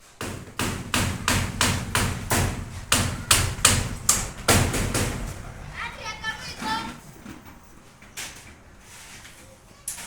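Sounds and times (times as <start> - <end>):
loud sharp ringing knocks: 0.0 - 5.7.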